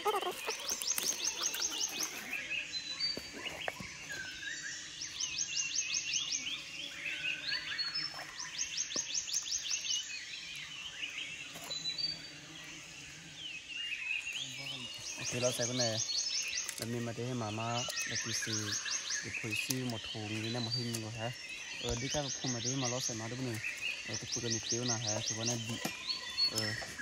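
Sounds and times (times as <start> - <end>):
wavering bird chirps: 0.0 - 27.0.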